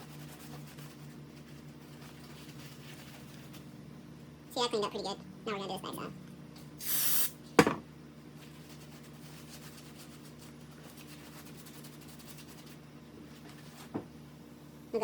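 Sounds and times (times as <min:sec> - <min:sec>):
aerosol spray hiss: 0:06.8 - 0:07.3.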